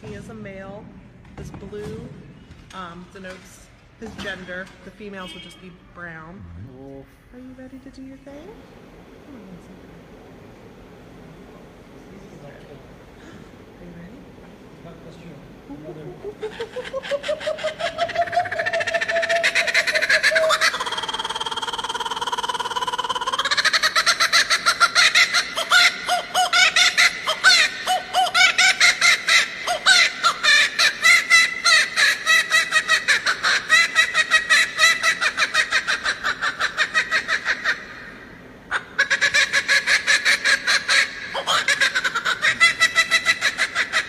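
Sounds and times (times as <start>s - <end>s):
kookaburra laughing call: 15.7s - 44.0s.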